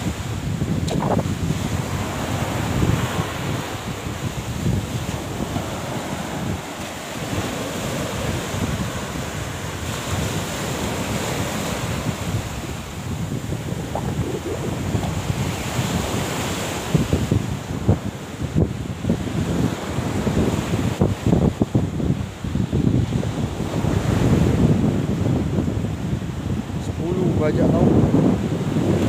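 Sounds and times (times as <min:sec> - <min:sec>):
wind buffeting microphone: 0:00.0 - 0:29.0
steady rushing noise: 0:00.8 - 0:17.4.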